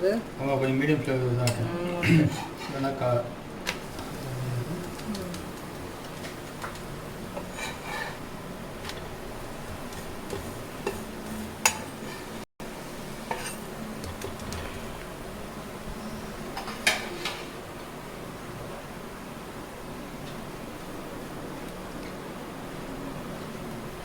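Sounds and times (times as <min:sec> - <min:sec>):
low background hum: 0:00.0 - 0:24.0
utensils clinking on pan: 0:10.3 - 0:12.4, 0:13.3 - 0:13.7.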